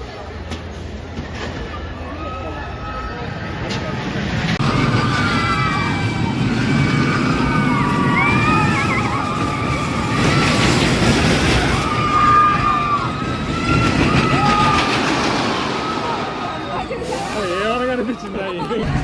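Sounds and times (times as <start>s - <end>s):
roller coaster rumbling on track: 0.0s - 19.0s
riders screaming: 4.6s - 18.3s.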